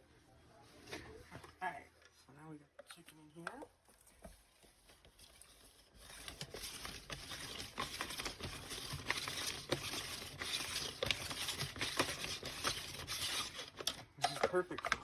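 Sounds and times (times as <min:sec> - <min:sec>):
chicken shredder crackling: 0:05.9 - 0:15.0.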